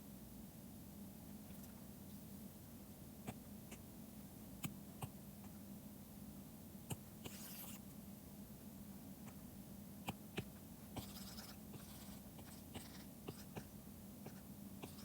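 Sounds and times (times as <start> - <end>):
steady low hum: 0.0 - 15.0
stylus pen on drawing tablet: 6.9 - 7.8, 10.1 - 15.0.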